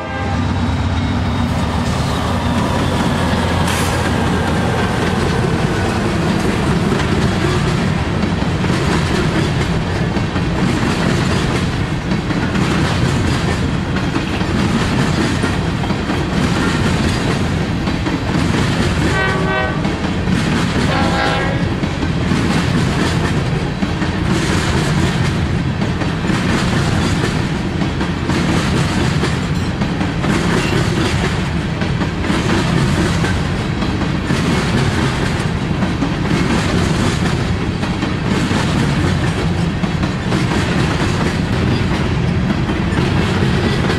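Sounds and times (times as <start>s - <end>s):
train horn: 0.0s - 1.2s, 19.0s - 20.0s, 20.8s - 21.8s
train wheels clattering: 0.7s - 43.9s.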